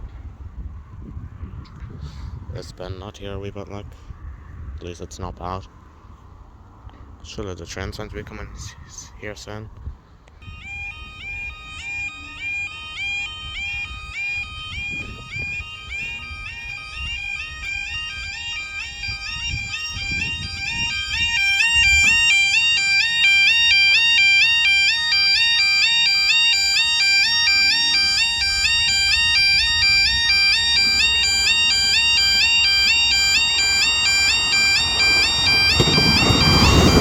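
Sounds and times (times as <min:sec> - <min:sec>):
level crossing alarm warbling: 0:10.4 - 0:37.0
broad rumbling noise: 0:12.4 - 0:37.0.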